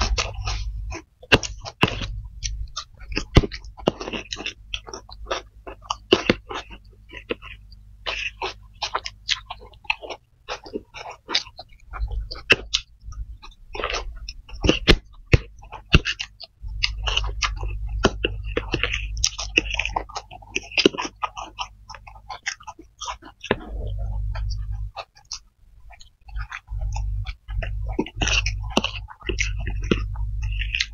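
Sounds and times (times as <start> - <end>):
low rumble: 0.0 - 5.1, 16.5 - 20.3, 23.5 - 30.9
chewing and slurping: 0.0 - 30.9.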